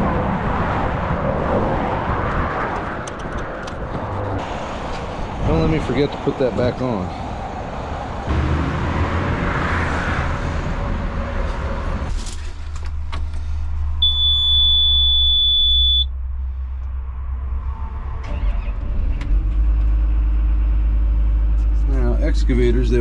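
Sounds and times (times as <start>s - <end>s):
electronic warning beep: 14.0s - 16.1s.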